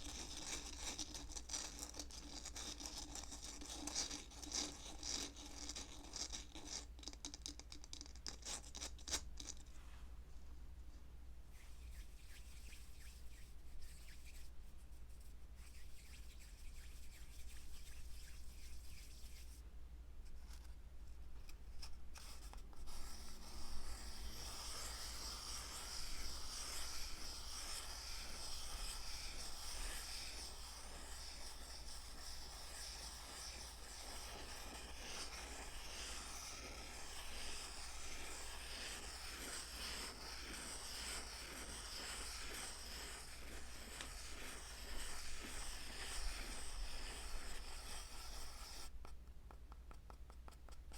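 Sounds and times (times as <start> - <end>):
rubbing and scratching on object: 0.0 - 10.1, 11.5 - 50.9
low steady hum: 9.3 - 24.4.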